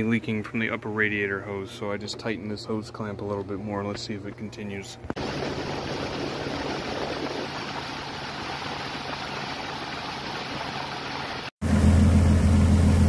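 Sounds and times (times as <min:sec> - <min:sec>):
car engine idling: 0:11.6 - 0:13.0.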